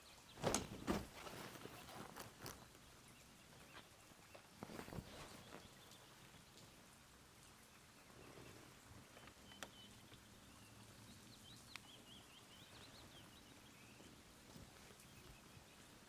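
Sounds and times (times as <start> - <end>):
small bird chirping: 7.8 - 16.0
soft clicks: 11.6 - 11.9.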